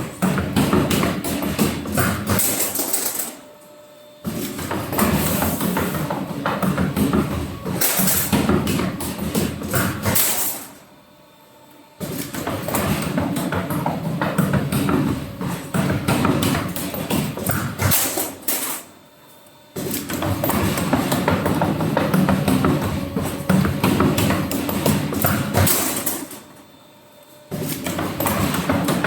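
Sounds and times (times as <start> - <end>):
machinery clattering: 19.8 - 26.6.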